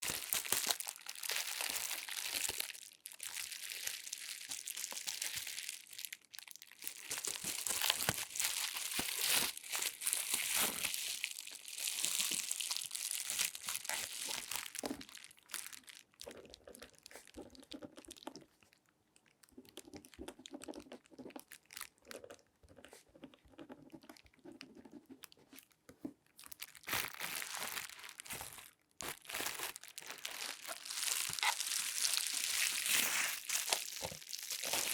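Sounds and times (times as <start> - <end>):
latex gloves crinkling: 0.0 - 18.4, 26.3 - 34.9.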